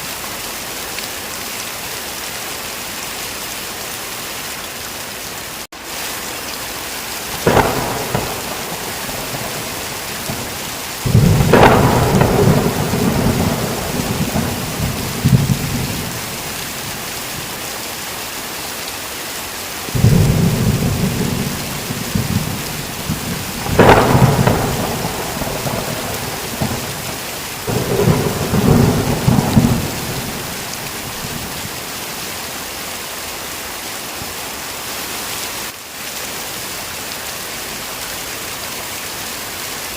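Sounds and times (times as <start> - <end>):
heavy rain: 0.0 - 39.9
thunder crack: 7.3 - 17.1, 20.0 - 31.8
rolling thunder: 7.3 - 17.5, 19.9 - 31.9.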